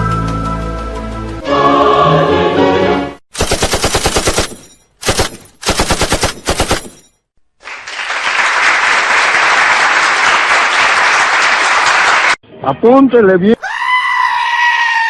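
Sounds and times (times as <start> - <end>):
machine gun fire: 3.3 - 7.1.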